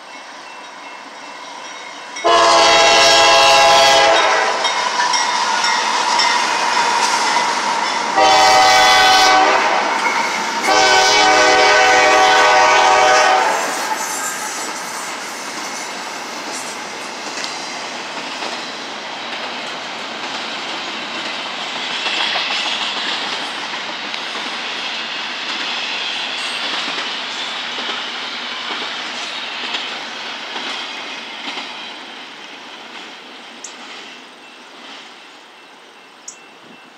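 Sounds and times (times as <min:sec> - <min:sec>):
freight train rolling past: 0:00.0 - 0:36.9
wheels clicking over rail joints: 0:14.0 - 0:24.8, 0:26.4 - 0:35.2.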